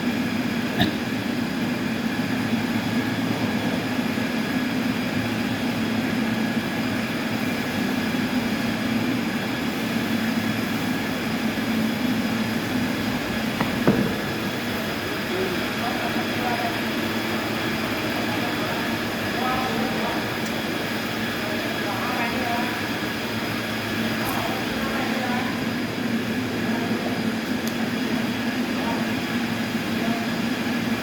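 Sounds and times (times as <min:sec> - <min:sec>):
sawmill machinery running: 0:00.0 - 0:31.0
sharp knock: 0:13.6 - 0:14.4.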